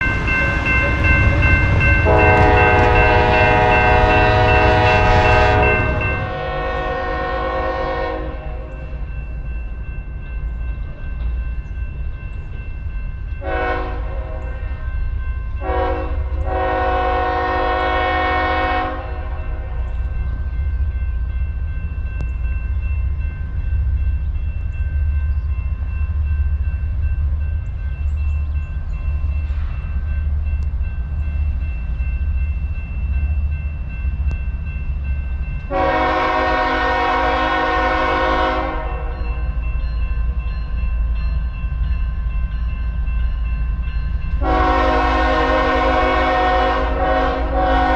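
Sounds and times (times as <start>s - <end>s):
diesel locomotive engines rumbling: 0.0s - 47.9s
train air horn blasts: 2.0s - 9.0s, 13.4s - 14.9s, 15.6s - 19.9s, 35.7s - 39.2s, 44.4s - 47.9s.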